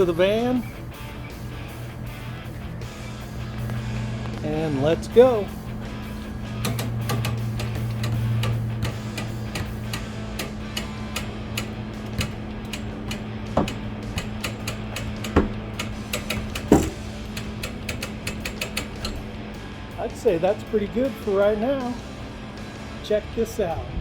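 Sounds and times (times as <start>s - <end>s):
steady low hum: 0.0s - 24.0s
dent puller ratcheting clicks: 3.6s - 19.4s
loud knocks: 6.6s - 19.3s.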